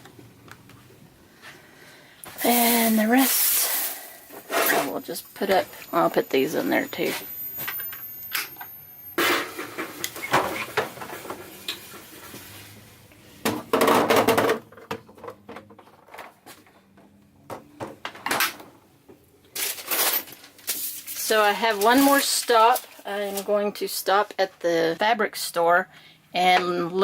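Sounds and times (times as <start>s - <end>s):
items and doors clicking and knocking: 7.0s - 12.2s, 13.4s - 20.9s
bags rustling: 19.6s - 23.5s.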